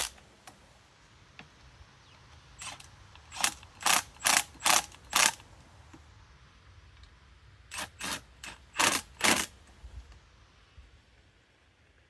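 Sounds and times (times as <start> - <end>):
ratchet wrench clicking: 0.0 - 0.2, 2.6 - 5.4, 7.7 - 9.5.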